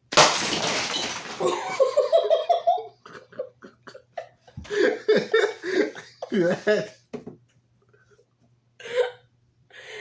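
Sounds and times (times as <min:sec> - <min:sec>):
party cannon blast: 0:00.1 - 0:01.4
person laughing: 0:01.4 - 0:07.0.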